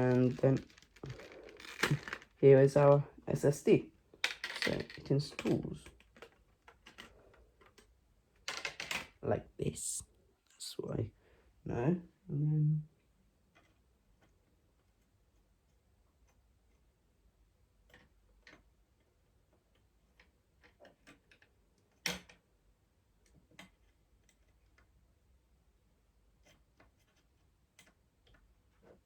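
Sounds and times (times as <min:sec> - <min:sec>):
small computer parts clicking: 0:04.2 - 0:09.2.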